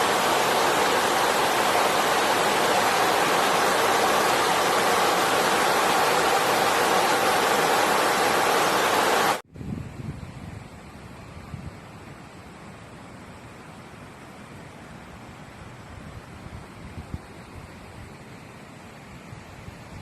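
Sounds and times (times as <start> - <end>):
rushing water: 0.0 - 9.4.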